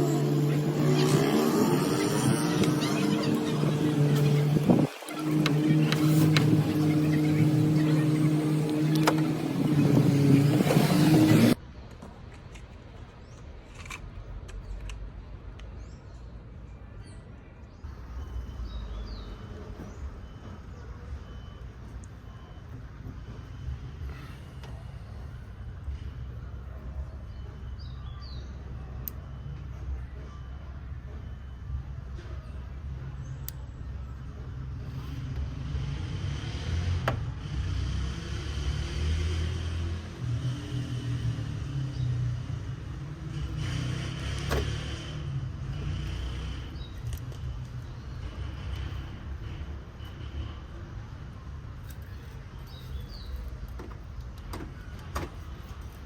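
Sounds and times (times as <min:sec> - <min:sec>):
car engine rumble: 0:00.0 - 0:12.2.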